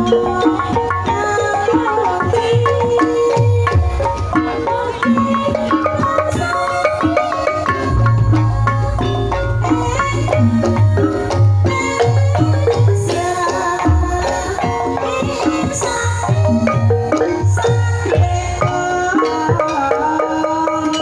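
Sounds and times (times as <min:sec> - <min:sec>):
hand drums: 0:00.0 - 0:21.0
keyed percussion melody: 0:00.0 - 0:21.0
deep low tone: 0:07.9 - 0:13.0.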